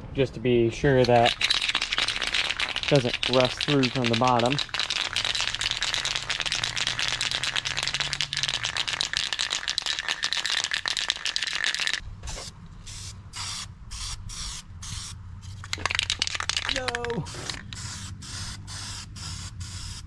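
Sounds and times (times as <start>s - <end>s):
aerosol spray can hissing: 1.3s - 12.0s, 15.9s - 20.0s.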